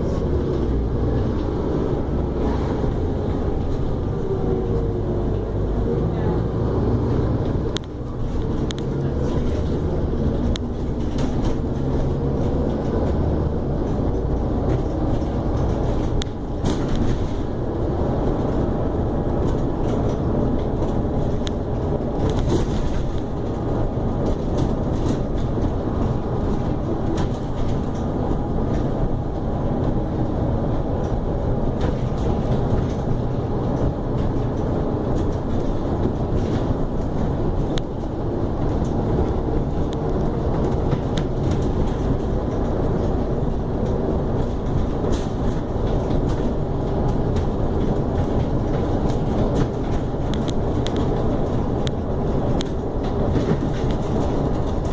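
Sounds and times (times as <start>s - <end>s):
bus diesel engine droning: 0.0s - 54.9s
clicks and rattles: 19.3s - 54.9s.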